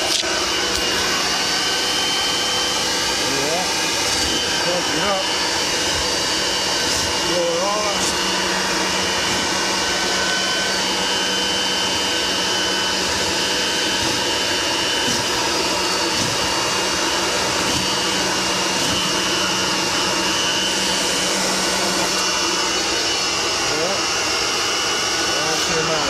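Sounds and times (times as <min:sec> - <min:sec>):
leaf blower running: 0:00.0 - 0:26.0.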